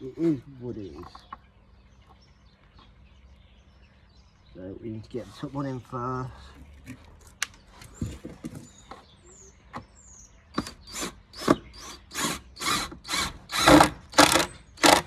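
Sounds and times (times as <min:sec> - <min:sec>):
drill driving screw into wood: 0:10.6 - 0:15.0.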